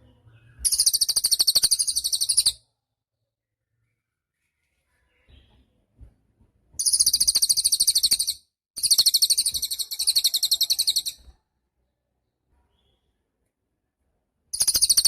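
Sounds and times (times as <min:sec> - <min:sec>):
songbird high-pitched trills: 0:00.5 - 0:02.6, 0:06.8 - 0:11.3, 0:14.6 - 0:15.0.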